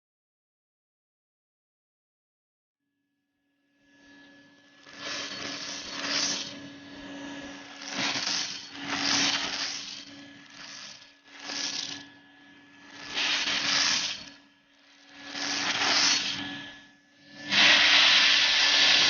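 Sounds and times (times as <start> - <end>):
vacuum motor hum: 4.0 - 19.0
beads rattling through vacuum hose: 4.8 - 6.6, 7.6 - 12.1, 12.8 - 14.4, 15.0 - 16.4.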